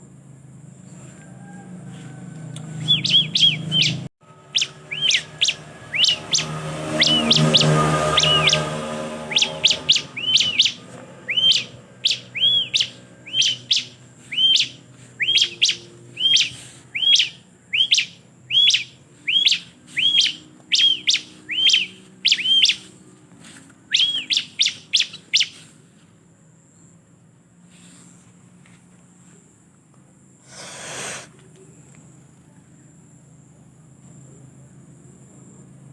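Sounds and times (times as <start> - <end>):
bird chirping: 2.6 - 25.8.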